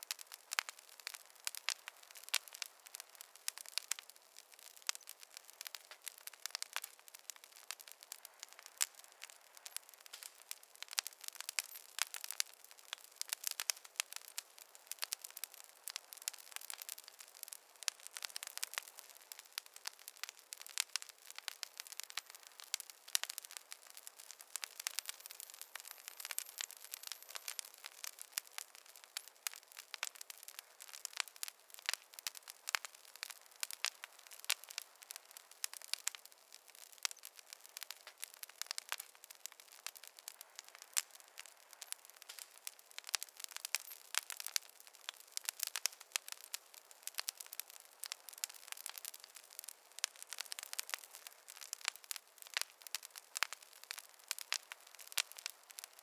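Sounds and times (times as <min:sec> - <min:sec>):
campfire crackling and popping: 0:00.0 - 0:56.0
faint hiss: 0:00.0 - 0:56.0.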